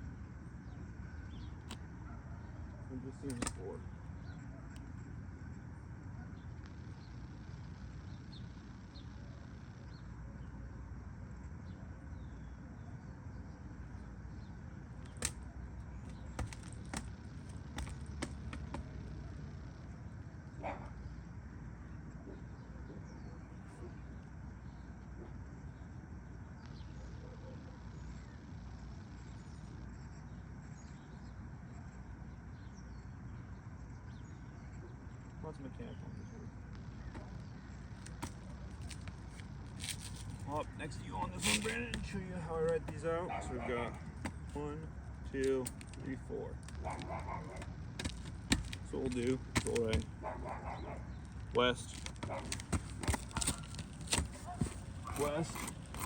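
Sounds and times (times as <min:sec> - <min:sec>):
faint bird chirps: 0:00.0 - 0:16.4
birds chirping: 0:00.0 - 0:56.0
low outdoor rumble: 0:00.0 - 0:56.0
sharp clicks: 0:03.2 - 0:03.6.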